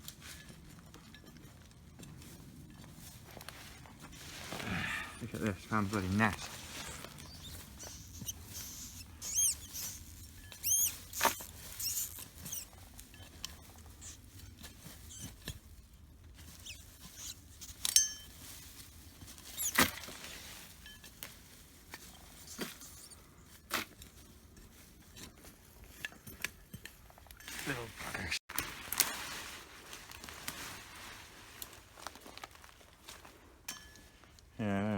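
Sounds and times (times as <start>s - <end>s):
rustling and scraping of soil: 0.0s - 34.7s
rats squeaking: 5.2s - 15.4s, 16.4s - 17.8s, 19.4s - 20.2s, 22.4s - 23.3s.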